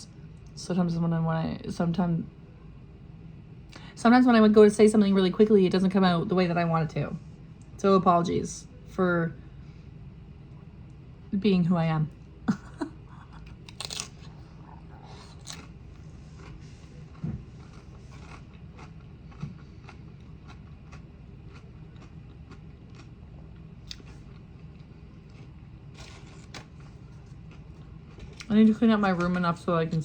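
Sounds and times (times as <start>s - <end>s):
person chewing food: 13.1s - 28.5s.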